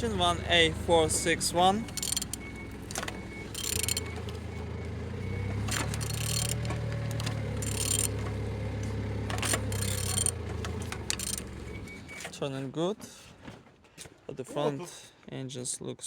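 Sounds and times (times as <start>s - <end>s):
low engine hum: 0.0s - 12.2s.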